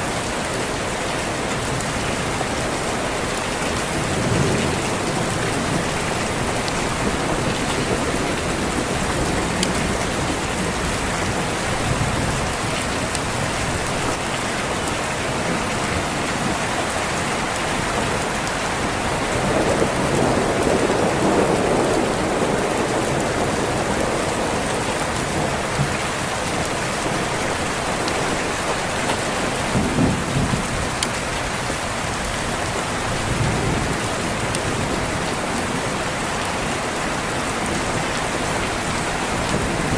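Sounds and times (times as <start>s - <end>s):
heavy rain on a window: 0.0s - 39.9s
thunder rumble: 3.8s - 14.1s, 19.0s - 36.0s.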